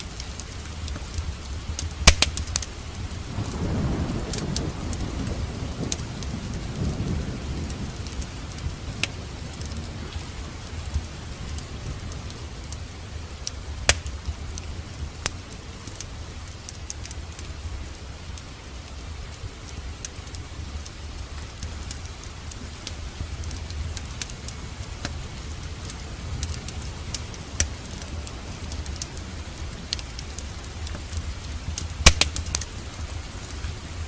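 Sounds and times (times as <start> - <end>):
steady rain: 0.0 - 34.0
fireplace crackling pops: 0.1 - 3.6, 7.7 - 11.7, 12.3 - 18.5, 19.4 - 33.2
thunder rumble: 0.7 - 16.3.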